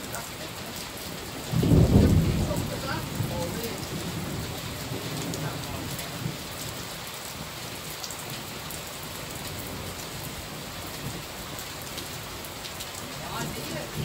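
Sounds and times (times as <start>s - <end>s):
low thunder rumble: 0.0s - 7.5s, 13.1s - 14.0s
heavy rain pattering: 0.0s - 14.0s.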